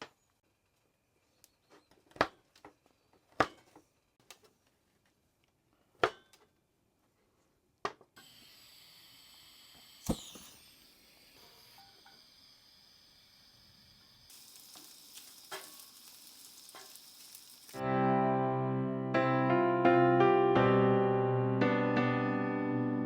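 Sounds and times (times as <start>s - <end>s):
steady hiss: 8.2s - 17.8s.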